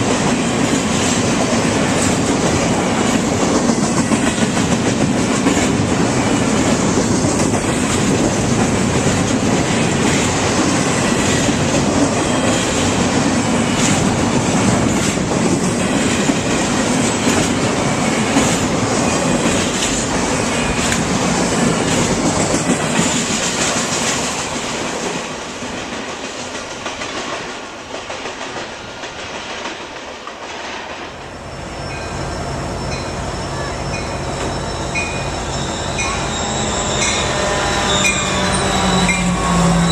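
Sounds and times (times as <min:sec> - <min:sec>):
train wheels clacking over rails: 0:00.0 - 0:31.3.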